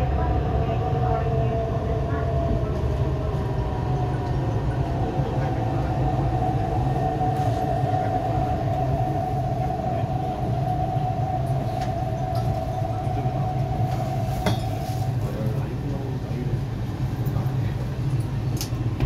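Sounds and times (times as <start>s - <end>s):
steady whining tone: 0.0s - 16.4s
train rumbling: 0.0s - 19.0s.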